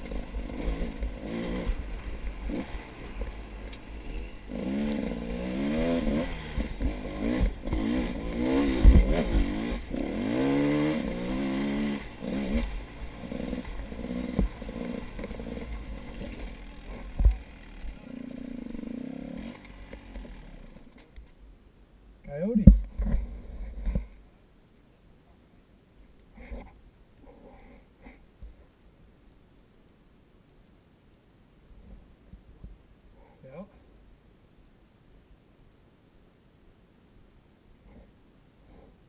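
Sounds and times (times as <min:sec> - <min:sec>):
vehicle engine revving: 0:00.0 - 0:21.0
steady low rumble: 0:00.0 - 0:24.6.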